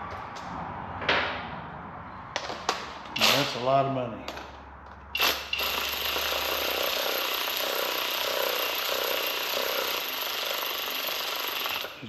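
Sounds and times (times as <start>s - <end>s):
power tool driving bolt: 3.2s - 3.6s, 5.2s - 12.0s.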